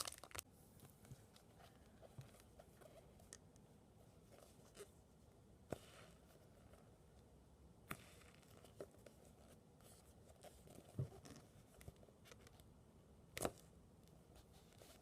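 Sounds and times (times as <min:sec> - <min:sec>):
plastic packaging rustle: 0:00.0 - 0:00.4.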